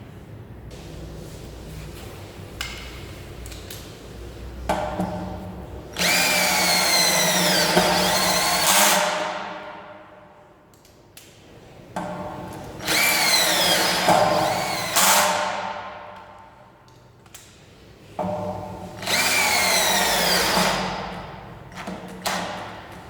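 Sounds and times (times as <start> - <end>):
cordless drill whining: 6.0 - 9.1, 12.8 - 15.4, 19.0 - 20.9.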